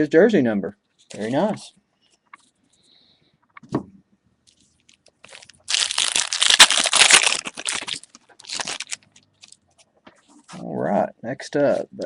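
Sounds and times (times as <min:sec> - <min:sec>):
foil wrapper tearing and crinkling: 0:05.2 - 0:09.6.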